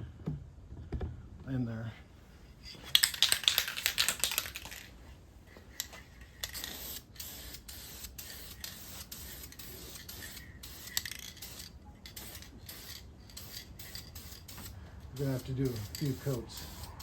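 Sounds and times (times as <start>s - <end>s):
aerosol can spraying: 2.9s - 4.9s, 5.8s - 17.0s
quick clicks: 2.9s - 4.9s.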